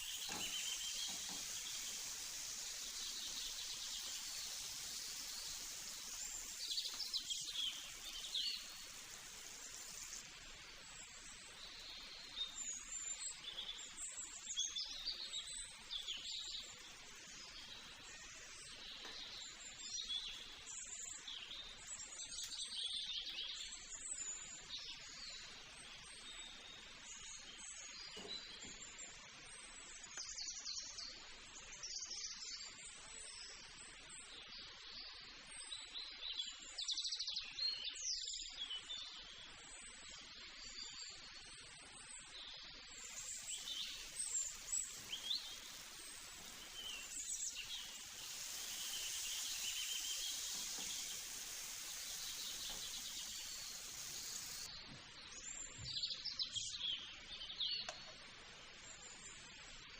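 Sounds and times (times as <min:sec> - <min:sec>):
birds chirping: 0:00.0 - 0:28.8, 0:42.9 - 0:59.0
background hiss: 0:00.0 - 0:59.9.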